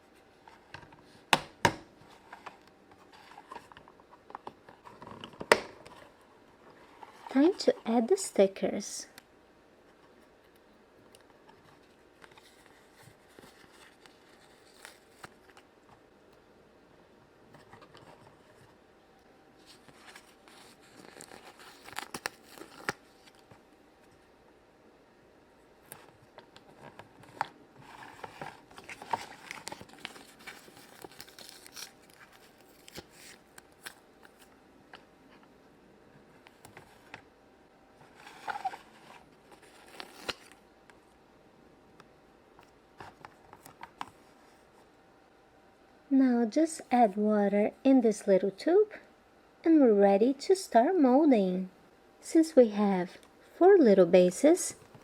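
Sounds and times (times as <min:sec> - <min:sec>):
stickers peeling and crinkling: 0:12.2 - 0:15.6, 0:19.6 - 0:23.5, 0:25.9 - 0:34.5.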